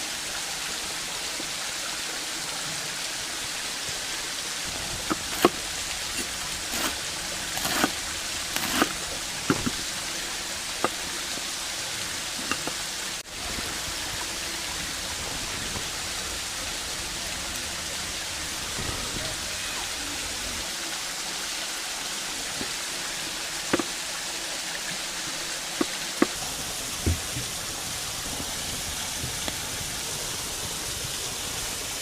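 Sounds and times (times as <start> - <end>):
waterfall rushing: 0.0 - 32.0
cooking gear knocks and clicks: 5.0 - 7.0, 7.6 - 9.9, 12.4 - 12.8.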